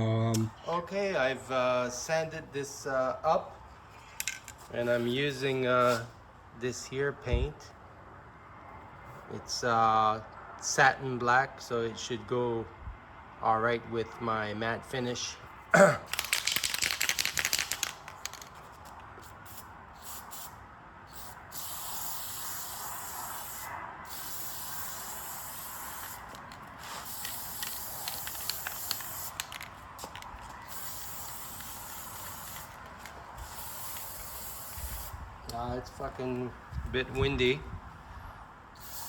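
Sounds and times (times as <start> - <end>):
spray paint hissing: 5.8 - 6.0, 16.1 - 35.2, 38.8 - 39.0
spray can rattling: 16.1 - 20.5, 21.1 - 35.1, 38.8 - 39.0.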